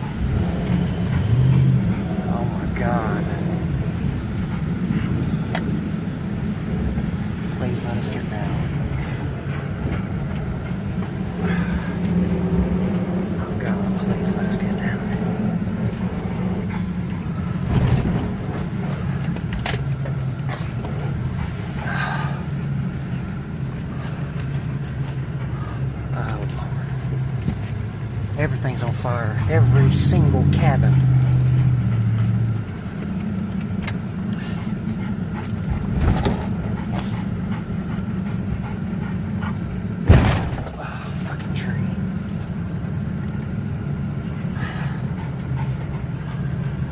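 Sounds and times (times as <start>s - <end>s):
truck bump: 0.0s - 41.3s
car engine and tyre hum: 0.0s - 46.9s.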